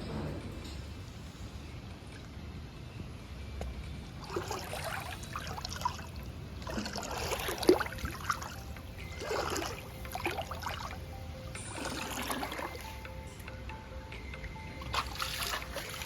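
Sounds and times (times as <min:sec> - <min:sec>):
water splashing in a pool: 0:04.2 - 0:13.0, 0:14.8 - 0:16.0.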